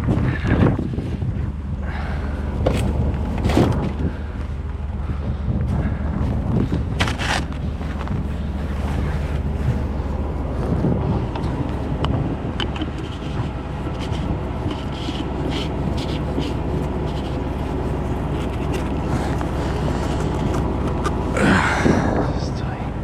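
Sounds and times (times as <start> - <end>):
engine rumbling: 0.0 - 23.0
wind buffeting microphone: 0.0 - 23.0.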